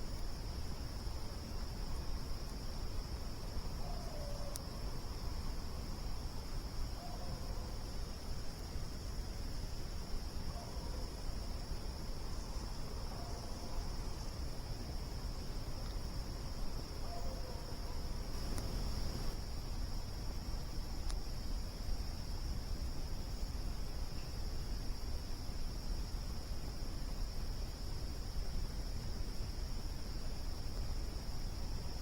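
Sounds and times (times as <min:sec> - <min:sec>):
insects chirping: 0:00.0 - 0:32.0
campfire snaps: 0:18.4 - 0:19.4.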